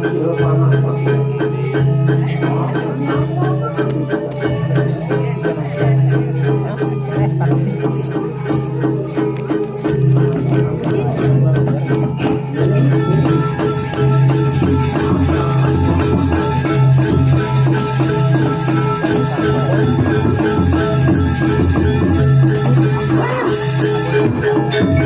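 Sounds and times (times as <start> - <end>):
fast percussion strokes: 0.0 - 25.0
metallophones ringing: 10.6 - 25.0.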